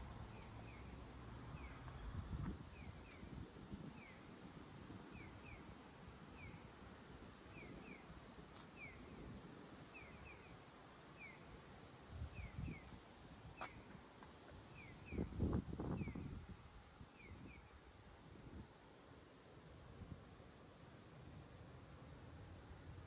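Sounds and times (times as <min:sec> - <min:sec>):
wind on microphone: 0:02.0 - 0:05.6, 0:12.1 - 0:13.9, 0:15.0 - 0:17.7.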